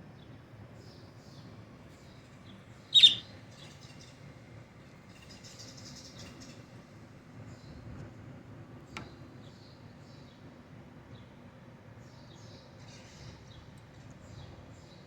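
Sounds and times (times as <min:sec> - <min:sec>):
faint rapid bird chirping: 0:02.9 - 0:03.7
pet bird loud call: 0:03.0 - 0:03.3.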